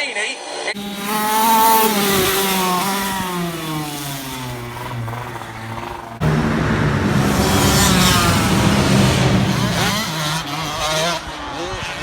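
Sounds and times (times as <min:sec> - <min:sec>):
racing motorcycle engine: 0:00.7 - 0:12.0.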